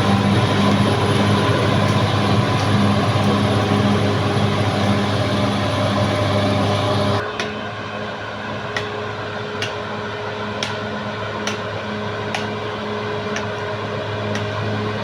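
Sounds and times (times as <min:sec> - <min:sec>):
bulldozer diesel engine running: 0:00.0 - 0:07.2, 0:14.2 - 0:15.0.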